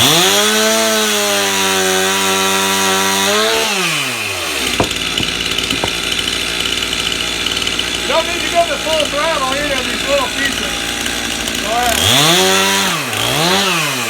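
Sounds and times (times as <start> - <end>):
chainsaw revving and idling: 0.0 - 14.0
light knocks: 4.8 - 6.2.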